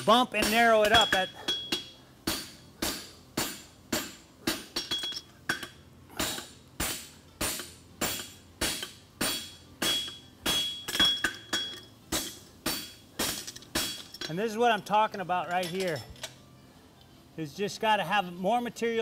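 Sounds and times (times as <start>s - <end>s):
hammer ringing on steel and anvil: 0.1s - 4.1s, 7.4s - 13.0s.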